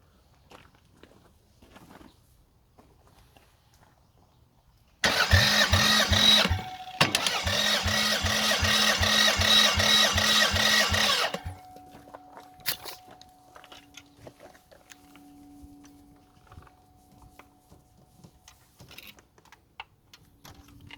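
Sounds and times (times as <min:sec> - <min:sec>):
engine starter cranking: 0:05.0 - 0:11.7.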